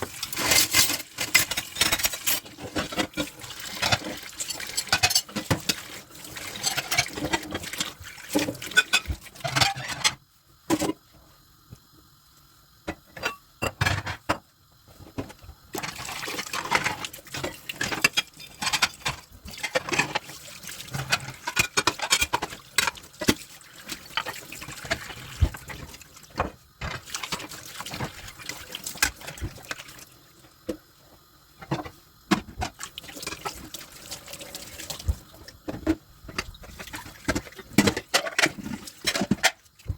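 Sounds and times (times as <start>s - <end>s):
water running and splashing: 0.0s - 9.4s, 15.8s - 30.4s, 32.7s - 39.9s
dishes clinking and knocking: 4.7s - 5.8s, 12.9s - 14.5s, 16.6s - 20.2s, 20.9s - 23.4s, 35.6s - 39.6s.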